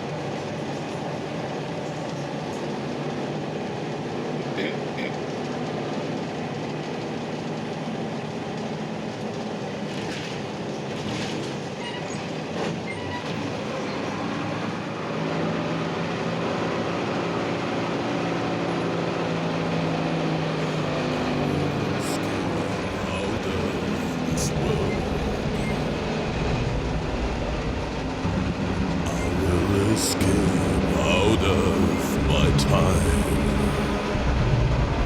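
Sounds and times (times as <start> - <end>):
road noise: 13.6 - 35.0
bus diesel engine running: 14.1 - 35.0.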